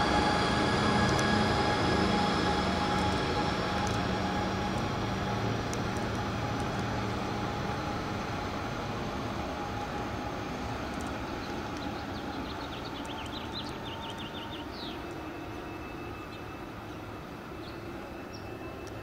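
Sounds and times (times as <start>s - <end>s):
passenger train rumble: 0.0s - 19.0s
bird chirping: 11.4s - 18.6s.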